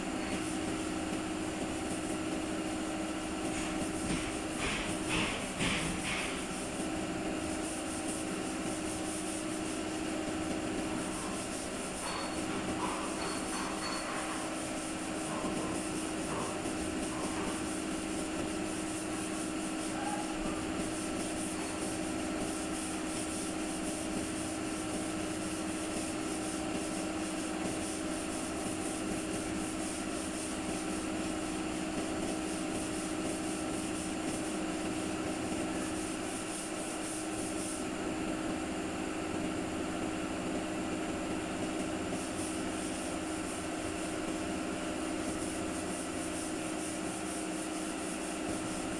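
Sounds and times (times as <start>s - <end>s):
machine hiss: 42.1s - 48.9s.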